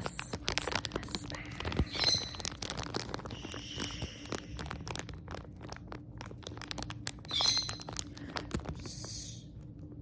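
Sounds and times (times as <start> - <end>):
plastic bag crinkling: 0.0 - 10.0
pet bird high call: 1.9 - 2.4, 7.3 - 7.9.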